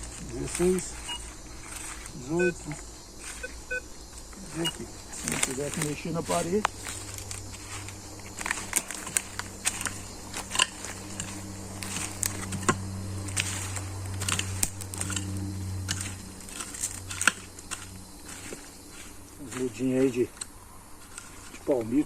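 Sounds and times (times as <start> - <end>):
dry leaves crackling: 0.0 - 22.0
metal detector low tone: 1.0 - 1.3, 2.2 - 3.8, 4.5 - 4.8.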